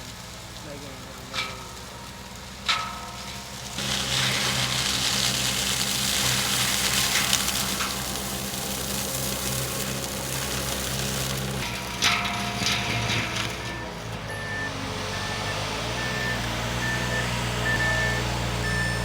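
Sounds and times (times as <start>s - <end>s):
engine low hum: 0.0s - 19.0s
metal clank: 1.2s - 17.1s.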